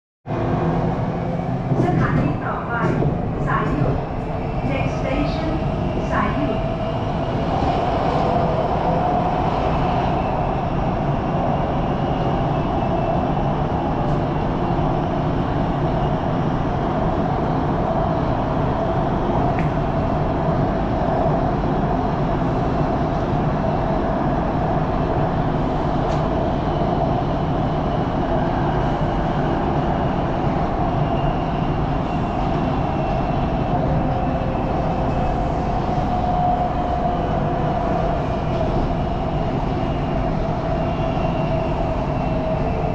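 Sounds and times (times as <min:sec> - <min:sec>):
train wheels rumbling on rail: 0:00.3 - 0:42.9.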